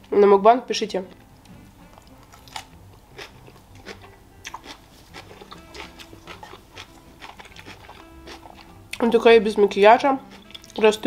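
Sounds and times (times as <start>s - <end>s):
person chewing with wet smacks: 2.0s - 9.1s, 10.3s - 10.8s.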